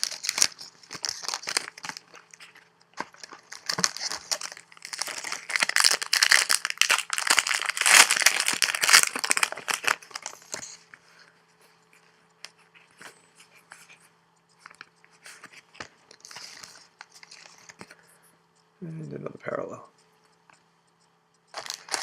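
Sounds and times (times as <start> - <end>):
wrapper crinkling and tearing: 0.0 - 10.8, 21.5 - 22.0.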